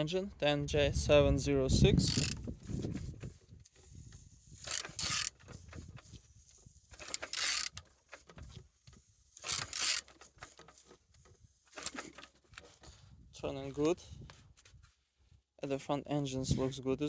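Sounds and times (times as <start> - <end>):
engine turned over by hand: 2.0 - 13.0.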